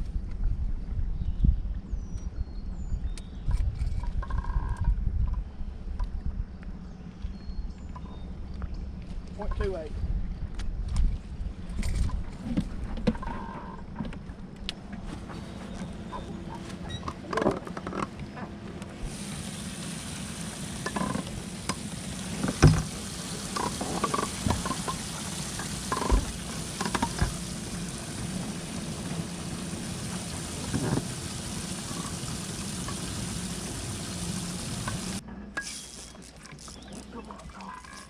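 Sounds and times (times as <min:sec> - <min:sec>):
steady spraying hiss: 0:19.0 - 0:35.2.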